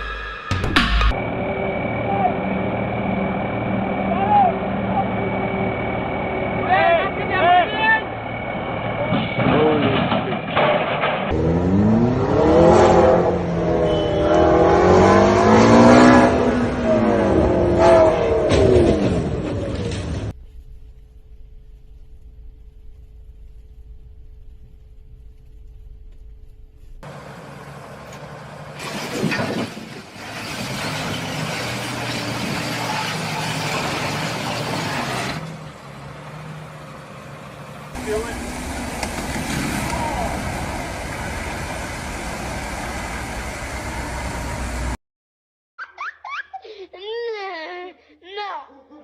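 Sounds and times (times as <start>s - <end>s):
road and wind noise: 1.1s - 45.0s
car engine revving: 11.3s - 20.3s, 27.0s - 45.0s.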